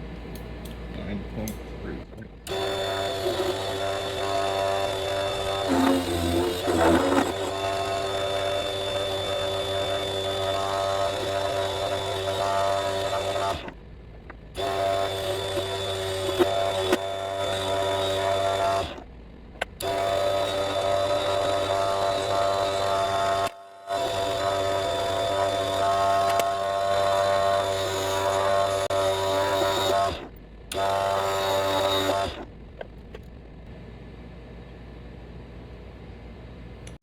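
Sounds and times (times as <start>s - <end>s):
lathe motor whine: 2.5s - 13.8s, 14.6s - 19.1s, 19.7s - 32.5s.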